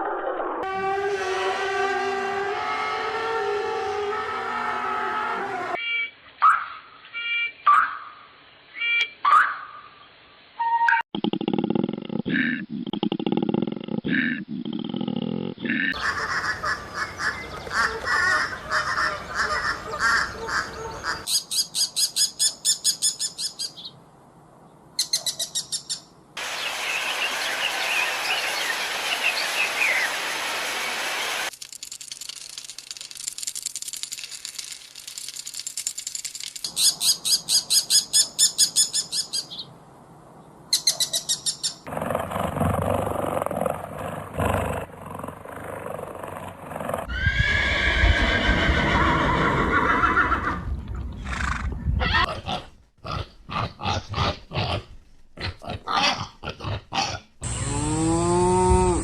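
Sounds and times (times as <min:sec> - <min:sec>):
birds trilling: 0:15.6 - 0:23.9.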